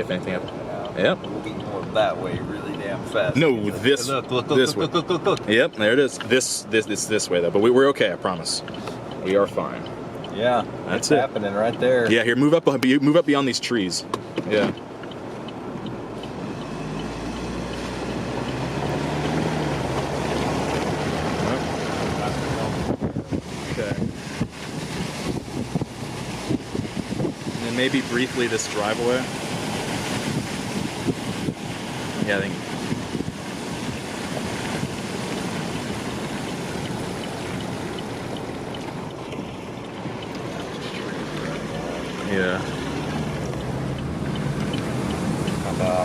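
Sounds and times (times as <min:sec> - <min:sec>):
car engine: 0:00.0 - 0:46.0
rain: 0:00.0 - 0:46.0
road noise: 0:00.0 - 0:46.0
wind: 0:00.0 - 0:46.0
faint ticks: 0:43.4 - 0:45.6.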